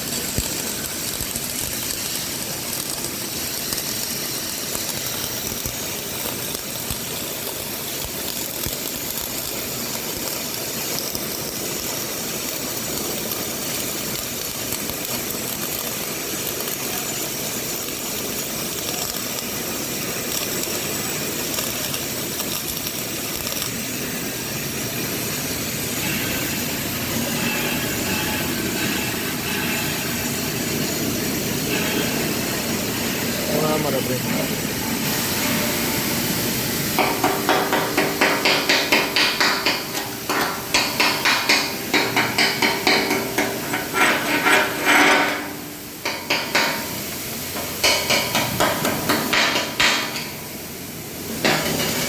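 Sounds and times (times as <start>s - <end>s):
welding arc crackling and hissing: 0.0s - 52.0s.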